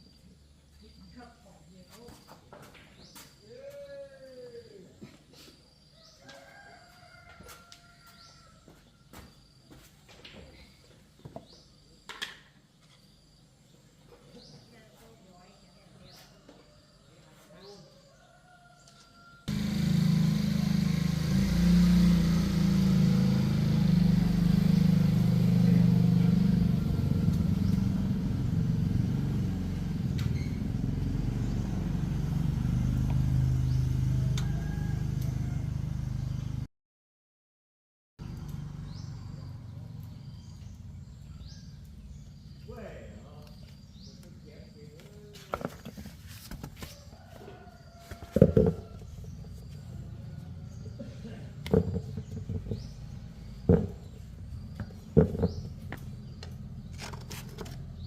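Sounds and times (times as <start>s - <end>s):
vehicle engine running: 19.5s - 36.7s, 38.2s - 42.7s, 48.3s - 58.0s.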